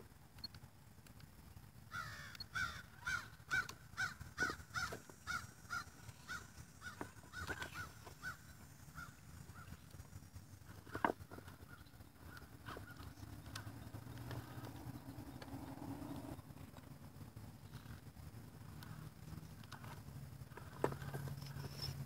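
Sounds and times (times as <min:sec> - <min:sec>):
bird calling repeatedly: 0:01.9 - 0:10.1, 0:10.7 - 0:16.4.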